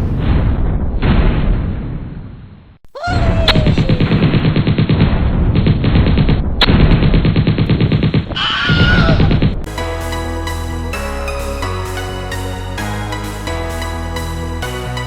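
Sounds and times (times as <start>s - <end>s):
rapid automatic gunfire: 3.8s - 8.4s.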